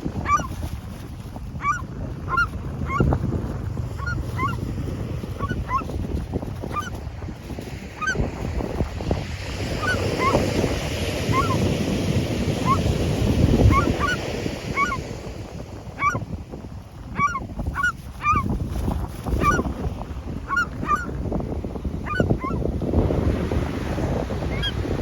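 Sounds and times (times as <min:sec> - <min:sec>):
gulls squawking: 0:00.0 - 0:08.9, 0:09.6 - 0:15.1, 0:15.9 - 0:16.3, 0:17.1 - 0:18.5, 0:19.3 - 0:19.7, 0:20.5 - 0:21.1, 0:22.0 - 0:22.6, 0:24.5 - 0:24.8.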